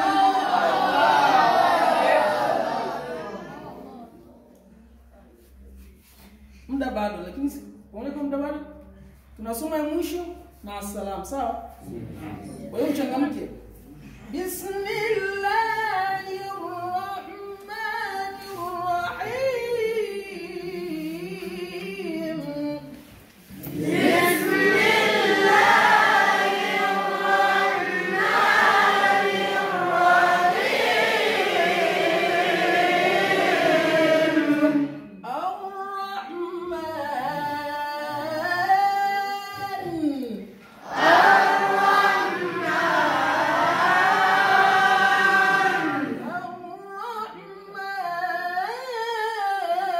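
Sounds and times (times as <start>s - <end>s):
voices chanting in unison: 0.0s - 4.0s, 23.5s - 35.2s, 40.8s - 46.4s.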